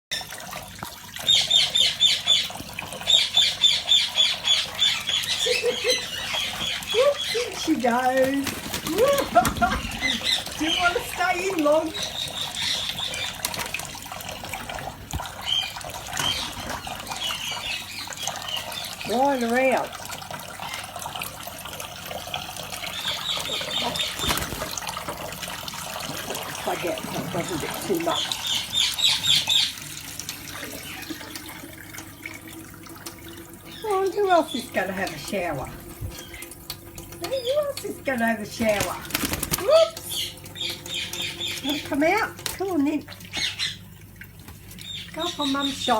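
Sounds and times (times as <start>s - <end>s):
tap water splashing into sink: 0.1s - 45.9s
parrot squawking: 3.1s - 7.7s, 8.8s - 13.4s.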